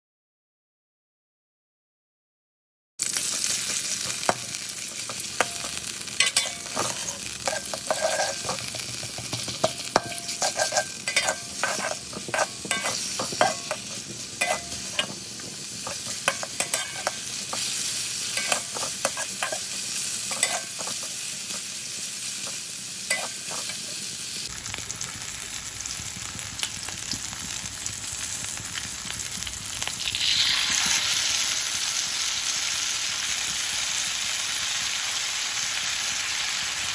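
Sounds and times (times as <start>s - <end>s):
food sizzling in a wok: 3.0s - 36.9s
spatula scraping and clacking wok: 3.1s - 24.0s.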